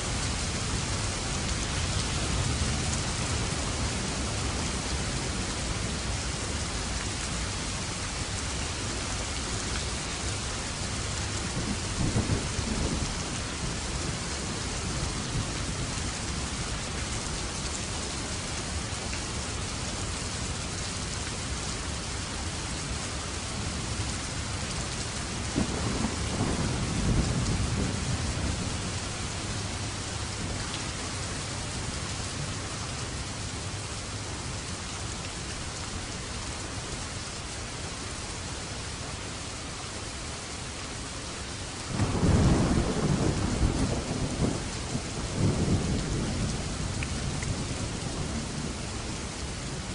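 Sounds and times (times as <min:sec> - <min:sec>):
heavy rain falling: 0:00.0 - 0:49.9
low rolls of thunder: 0:11.5 - 0:16.6, 0:25.5 - 0:29.6, 0:41.9 - 0:49.0.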